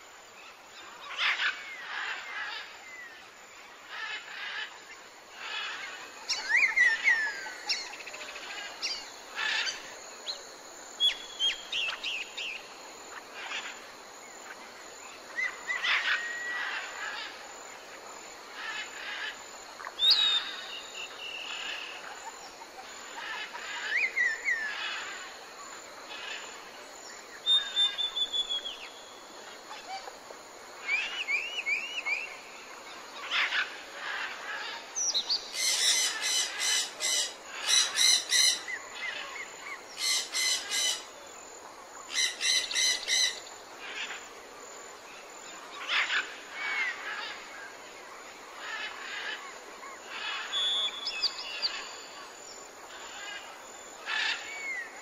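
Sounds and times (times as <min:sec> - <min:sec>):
steady background hiss: 0:00.0 - 0:55.0
birds whistling and chirping: 0:20.0 - 0:21.6, 0:27.4 - 0:28.9, 0:30.9 - 0:32.4, 0:50.5 - 0:51.9.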